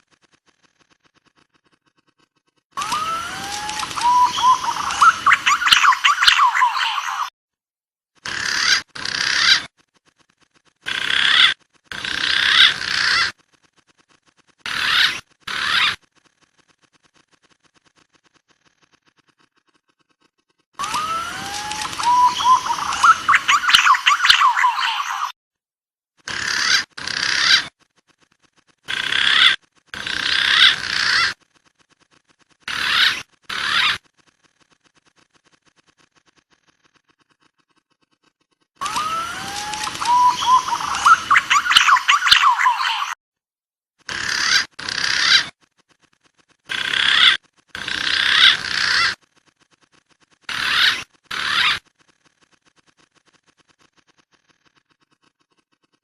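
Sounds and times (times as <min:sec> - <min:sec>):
pigeon calls: 0:02.8 - 0:07.3, 0:08.2 - 0:09.7, 0:10.8 - 0:13.3, 0:14.6 - 0:16.1, 0:20.8 - 0:25.3, 0:26.3 - 0:27.8, 0:28.9 - 0:31.4, 0:32.6 - 0:34.1, 0:38.8 - 0:43.2, 0:44.1 - 0:45.6, 0:46.7 - 0:49.2, 0:50.5 - 0:51.9
wild pigeon calls: 0:02.8 - 0:07.3, 0:20.8 - 0:25.3, 0:38.8 - 0:43.2.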